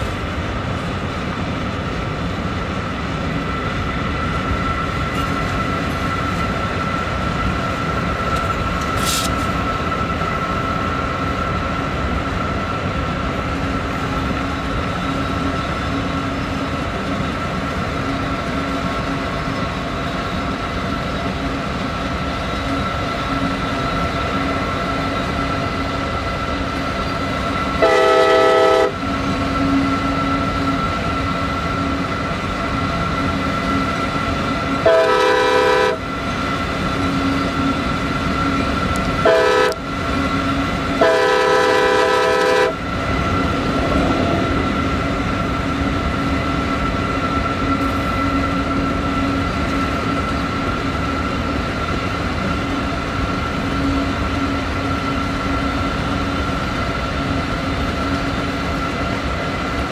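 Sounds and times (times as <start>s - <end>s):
train rumbling on rails: 0.0s - 59.9s
train air horn blasts: 27.8s - 29.0s, 34.8s - 36.0s, 39.2s - 39.8s, 40.9s - 42.8s.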